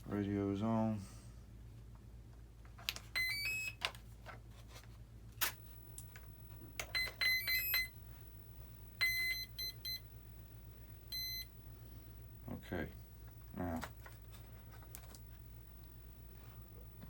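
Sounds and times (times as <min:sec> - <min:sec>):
motor controller beeps: 0:03.2 - 0:03.8, 0:06.8 - 0:07.9, 0:09.0 - 0:10.0, 0:11.1 - 0:11.5.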